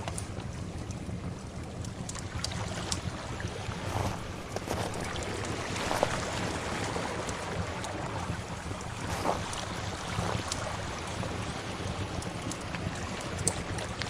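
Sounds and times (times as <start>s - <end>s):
wood fire crackling: 0.0s - 14.0s
sea waves washing: 2.0s - 14.0s.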